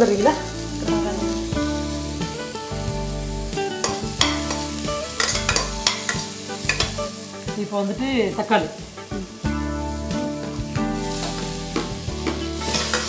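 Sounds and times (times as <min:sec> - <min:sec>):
food sizzling in oil: 0:00.0 - 0:13.0
metal spatula scraping pot: 0:03.8 - 0:07.1.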